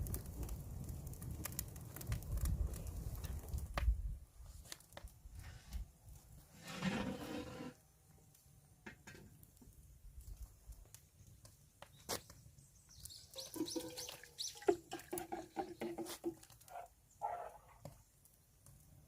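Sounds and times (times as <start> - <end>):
birds chirping and clucking: 13.2 - 17.8.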